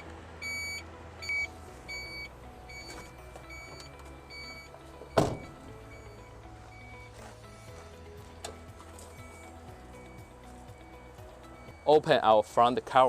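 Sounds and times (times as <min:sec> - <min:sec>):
truck warning beeper: 0:00.0 - 0:07.7, 0:08.5 - 0:12.4
metallic clunk: 0:05.0 - 0:06.0.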